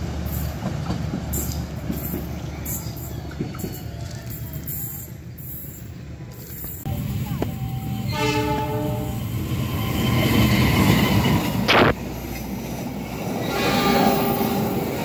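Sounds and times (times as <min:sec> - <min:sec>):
train wheels rumbling on rail: 0:00.0 - 0:05.6, 0:06.2 - 0:15.0
locomotive horn: 0:07.8 - 0:09.3, 0:13.5 - 0:14.6.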